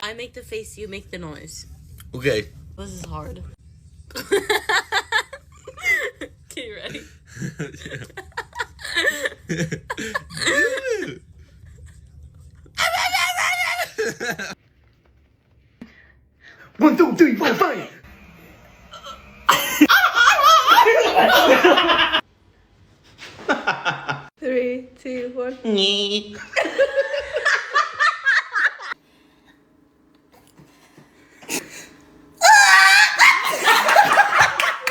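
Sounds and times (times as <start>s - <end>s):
person crying out: 32.4s - 34.3s.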